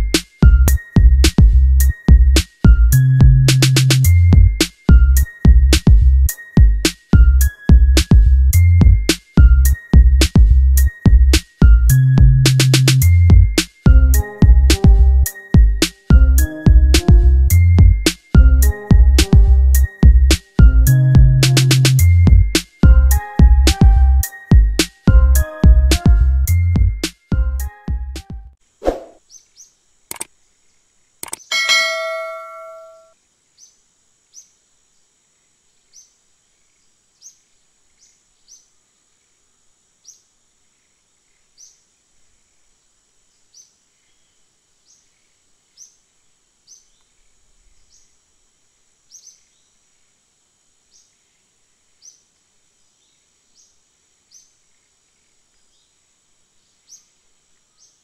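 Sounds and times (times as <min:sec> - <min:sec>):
high insect drone: 0:00.0 - 0:25.1, 0:28.6 - 0:58.0
bird chirping: 0:31.2 - 0:34.6
bell-like ding: 0:31.5 - 0:33.1.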